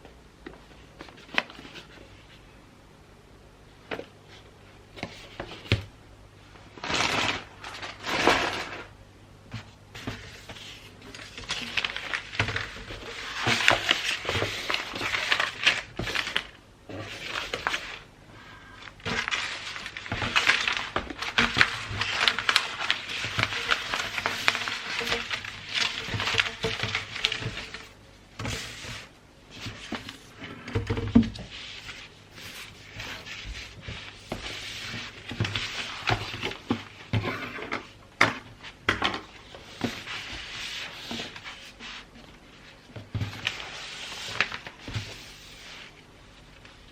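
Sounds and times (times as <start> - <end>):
wrapping paper crinkling: 6.7 - 8.9, 10.3 - 28.0, 39.2 - 46.9.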